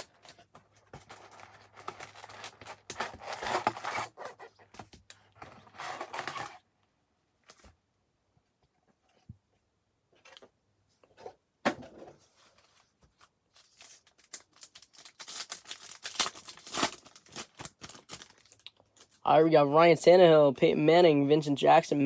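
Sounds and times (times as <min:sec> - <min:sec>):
plastic wrapper tearing and crinkling: 0:00.0 - 0:00.4, 0:01.0 - 0:04.4, 0:13.5 - 0:19.2.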